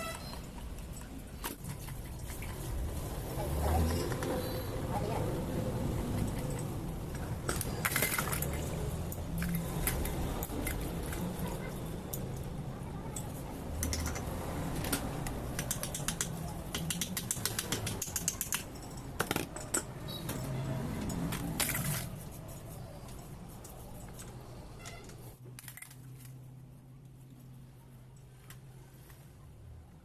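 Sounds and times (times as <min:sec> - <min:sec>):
metal tools clicking and rattling: 0:05.9 - 0:26.2.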